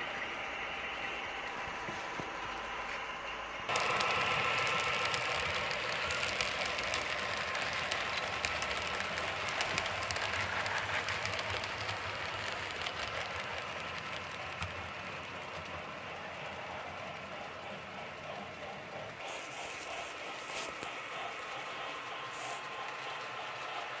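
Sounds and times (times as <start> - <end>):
model train rolling rattle: 0.0 - 24.0
sharp track clicks: 3.7 - 15.9.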